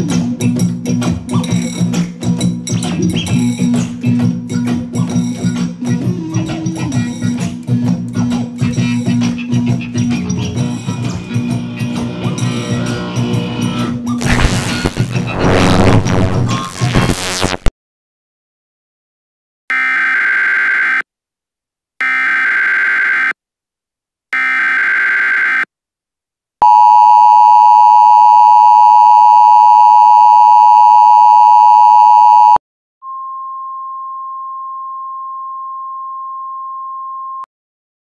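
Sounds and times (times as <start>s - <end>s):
warbling data bursts: 14.2s - 17.7s
two-tone attention signal: 26.6s - 36.8s
single steady tone: 26.6s - 37.5s.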